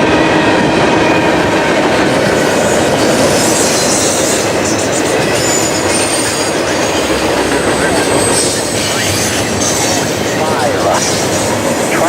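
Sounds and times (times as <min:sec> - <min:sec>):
train wheels rumbling on rails: 0:00.0 - 0:12.0
wheel squeal: 0:02.3 - 0:10.4.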